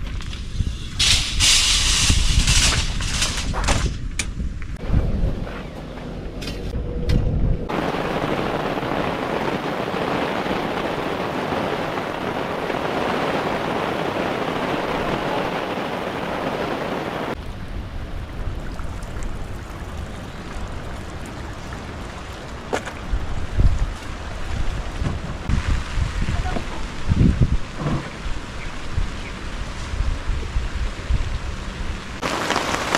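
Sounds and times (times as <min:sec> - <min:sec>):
wind rumbling on microphone: 0:00.0 - 0:32.9
heavy rain hissing: 0:07.7 - 0:32.9.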